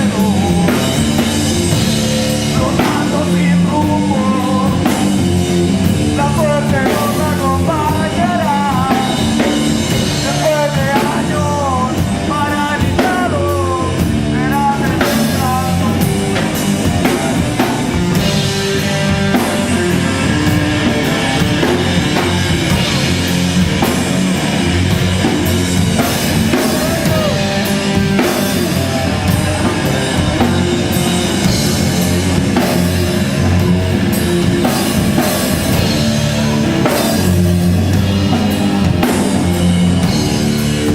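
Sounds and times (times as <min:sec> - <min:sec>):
person singing: 0:00.0 - 0:05.3, 0:06.0 - 0:09.4, 0:10.2 - 0:17.2, 0:26.5 - 0:31.3
heavy rock band playing: 0:00.0 - 0:40.9.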